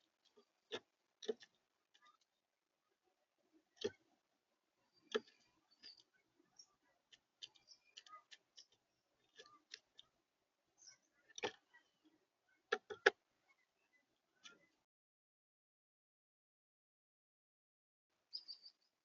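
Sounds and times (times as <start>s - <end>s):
pecking taps at bird feeder: 0.2s - 2.3s, 12.7s - 13.2s.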